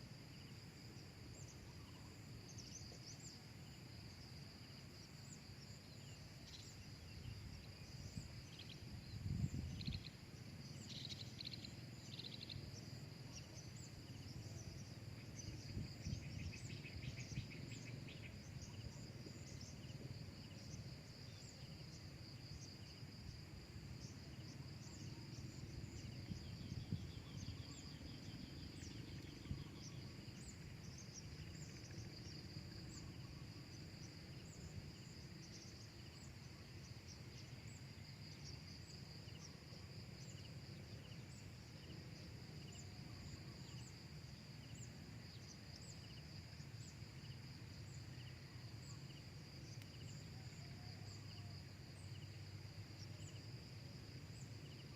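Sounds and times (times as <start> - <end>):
insect chorus trilling: 0.0 - 54.9.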